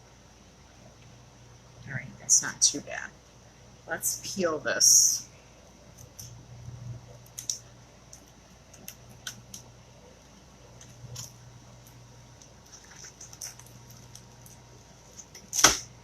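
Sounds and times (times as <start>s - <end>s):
faint low hum: 0.0s - 16.0s
sticky film peeling off glass: 12.6s - 15.9s.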